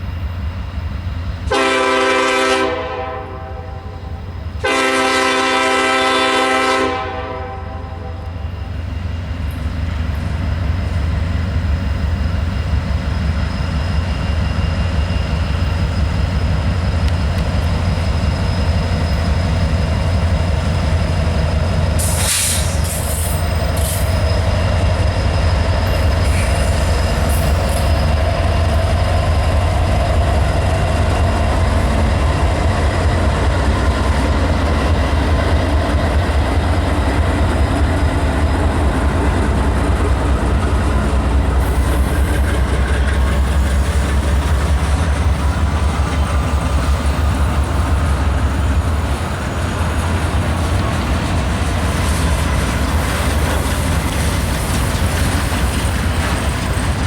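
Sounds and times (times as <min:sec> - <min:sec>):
freight train rumbling on rails: 0:00.0 - 0:57.0
high wheel squeal: 0:08.4 - 0:30.2, 0:40.9 - 0:51.1.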